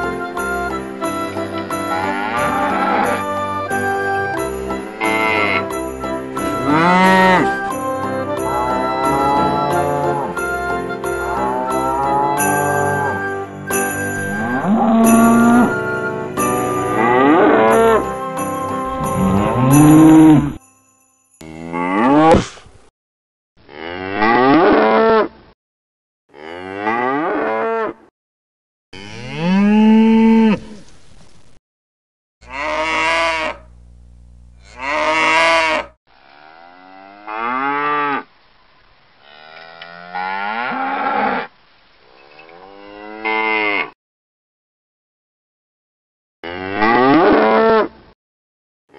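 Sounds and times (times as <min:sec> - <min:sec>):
cattle mooing: 0:02.0 - 0:03.2, 0:05.0 - 0:05.6, 0:06.6 - 0:07.5, 0:14.2 - 0:15.7, 0:29.0 - 0:30.7, 0:32.4 - 0:33.6, 0:34.6 - 0:38.2, 0:42.5 - 0:43.9.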